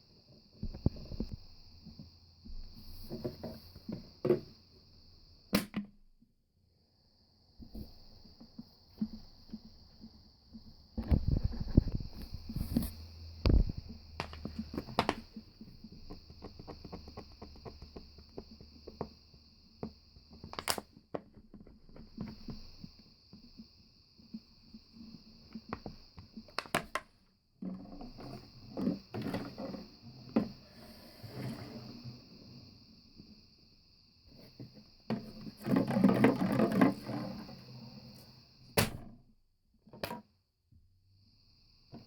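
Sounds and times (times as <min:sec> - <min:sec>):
bottles clicking and knocking: 0:14.2 - 0:15.2.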